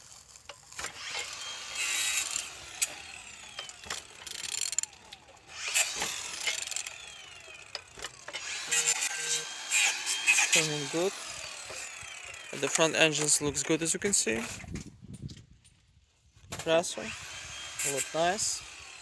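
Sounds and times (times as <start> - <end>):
ratchet wrench clicking: 0.0 - 5.0, 5.6 - 10.8.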